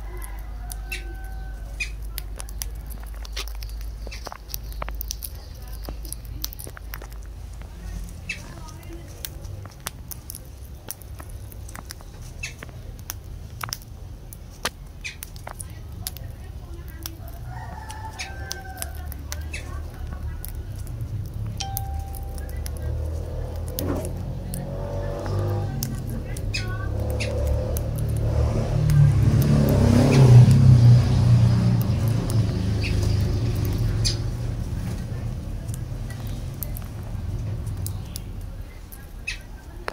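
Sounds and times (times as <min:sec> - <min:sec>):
birds chirping: 0:00.0 - 0:09.7, 0:10.4 - 0:13.1, 0:21.6 - 0:27.8, 0:31.1 - 0:39.9
vehicle engine rumble passing: 0:00.0 - 0:39.9
low steady hum: 0:21.0 - 0:27.9.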